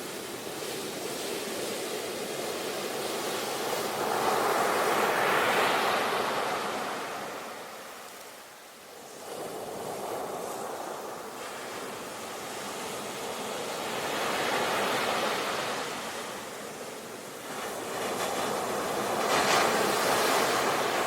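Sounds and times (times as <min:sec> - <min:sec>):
ocean waves on a shore: 0:00.0 - 0:21.0.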